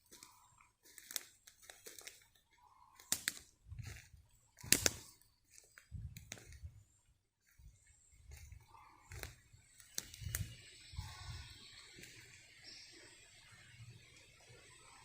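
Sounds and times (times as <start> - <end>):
footsteps on wet forest floor: 0.0 - 12.8
leaves and twigs snapping underfoot: 0.1 - 2.4, 3.0 - 6.7, 8.3 - 11.2.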